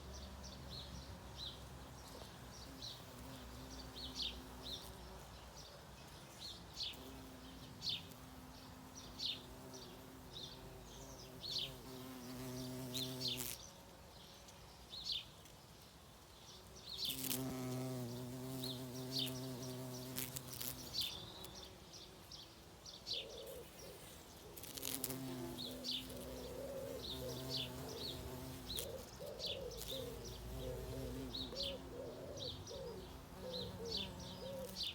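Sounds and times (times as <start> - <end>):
flying insect buzzing: 6.8 - 13.7, 17.0 - 22.3, 23.6 - 34.9.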